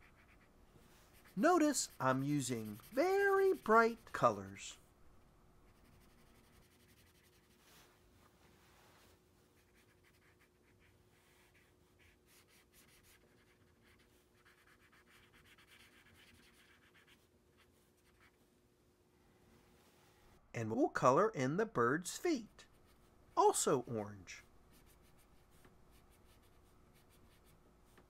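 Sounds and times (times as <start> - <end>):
marker colouring on paper: 0.0 - 0.5, 1.1 - 4.6, 5.7 - 7.6, 9.6 - 18.4, 24.7 - 28.0.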